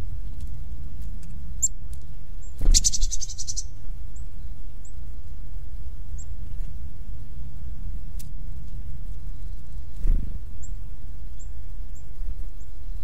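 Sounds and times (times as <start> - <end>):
steady low rumble: 0.0 - 13.0
bird chattering trill: 2.7 - 3.8.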